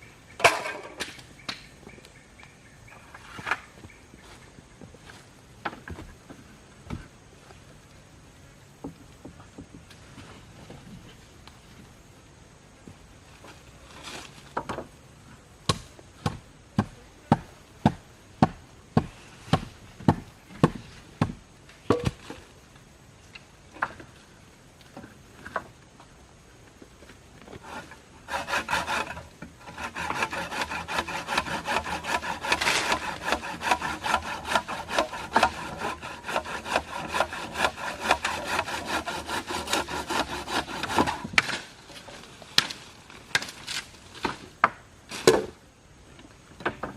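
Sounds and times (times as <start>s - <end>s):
hand saw cutting wood: 27.6s - 41.6s.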